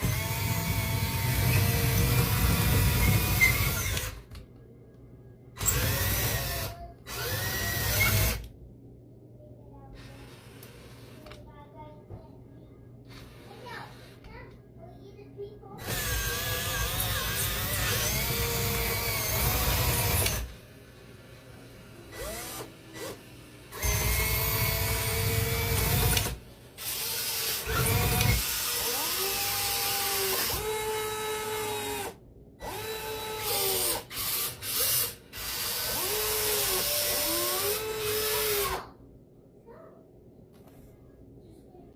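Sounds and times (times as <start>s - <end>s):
small electric motors whining: 0.0s - 4.3s, 5.6s - 8.5s, 15.8s - 20.6s, 21.6s - 38.9s.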